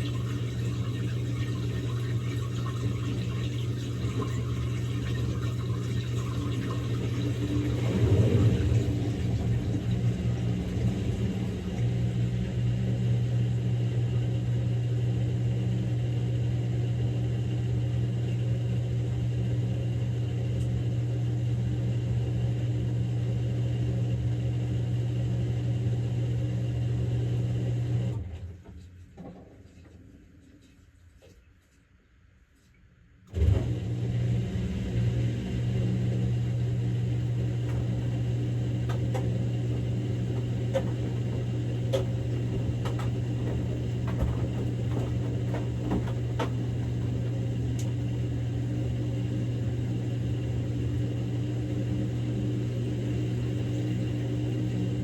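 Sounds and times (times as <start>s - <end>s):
washing machine humming: 0.0s - 31.7s, 33.3s - 55.0s.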